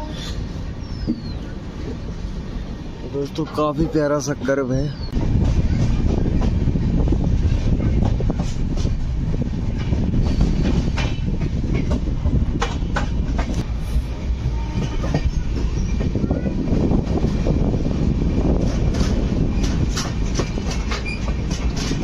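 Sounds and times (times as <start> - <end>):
train wheels rumbling on rails: 0.0 - 22.0
wheels clicking over rail joints: 18.5 - 22.0.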